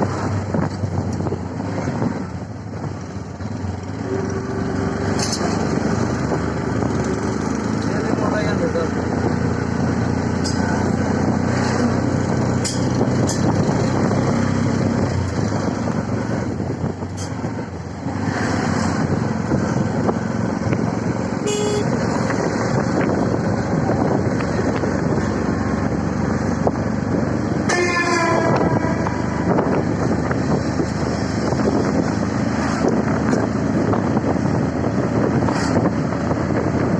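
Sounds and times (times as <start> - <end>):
road noise: 0.0 - 36.9
short horn toots: 21.4 - 22.0.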